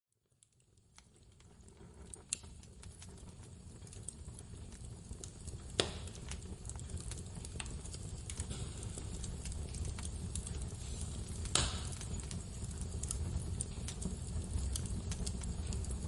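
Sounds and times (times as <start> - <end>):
wood fire crackling: 0.2 - 16.0
sharp pops of fire: 0.4 - 16.0.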